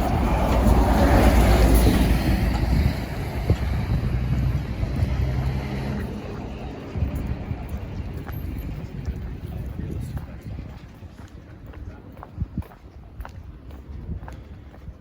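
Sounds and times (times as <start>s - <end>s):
vehicle engine passing by: 0.0s - 8.8s
street noise: 0.0s - 15.0s.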